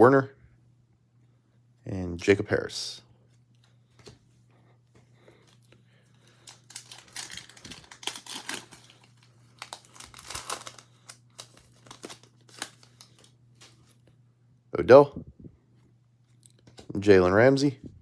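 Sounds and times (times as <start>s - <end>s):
cards rustling and clicking: 5.4s - 14.0s
foil wrapper crinkling and tearing: 6.3s - 14.0s.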